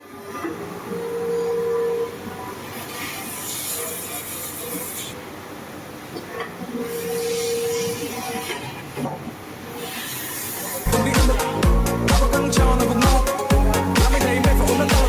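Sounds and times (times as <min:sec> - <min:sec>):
cnc machine whine: 0:06.6 - 0:08.7.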